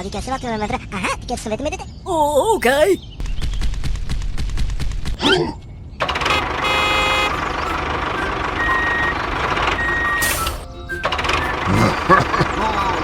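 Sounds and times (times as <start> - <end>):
vehicle running: 6.0 - 13.0
reversing beeper: 6.2 - 13.0.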